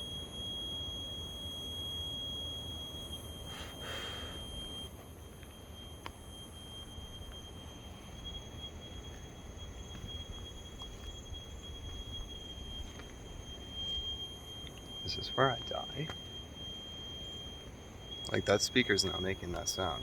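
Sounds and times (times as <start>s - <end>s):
high-pitched tone: 15.0s - 16.2s.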